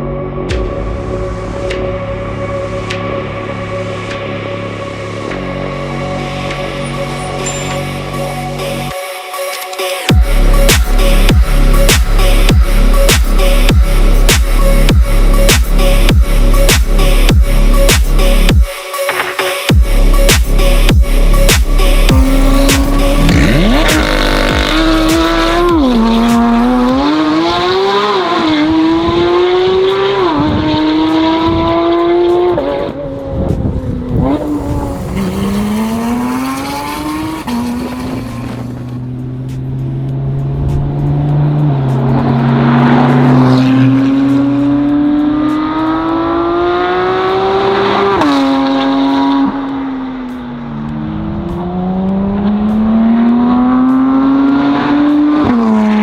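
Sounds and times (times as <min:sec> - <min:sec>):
sports car engine revving through gears: 0:21.3 - 0:56.0.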